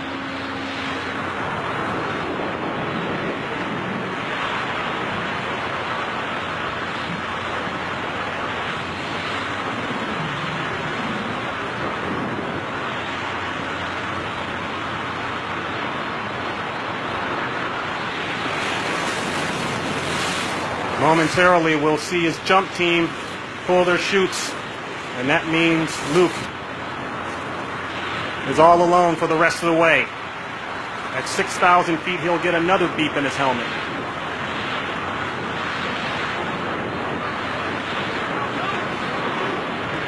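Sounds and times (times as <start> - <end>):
wind buffeting microphone: 0.0 - 40.0
air rushing in free fall: 17.2 - 28.5.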